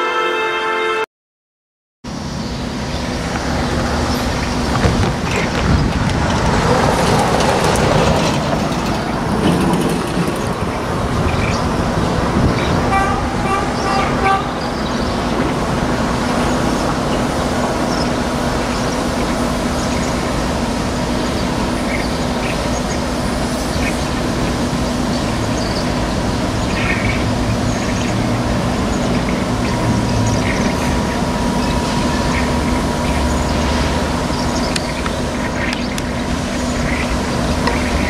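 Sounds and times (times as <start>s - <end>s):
train horn toots: 0.0s - 1.1s, 12.6s - 14.9s
train rumble: 2.1s - 38.0s
wind noise on microphone: 3.2s - 19.7s.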